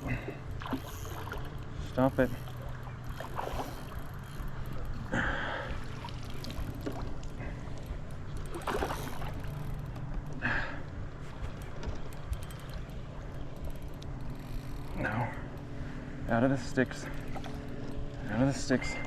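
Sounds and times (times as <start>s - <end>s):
water lapping around kayak: 0.0s - 19.0s
short splashes: 0.1s - 4.2s, 8.5s - 9.8s.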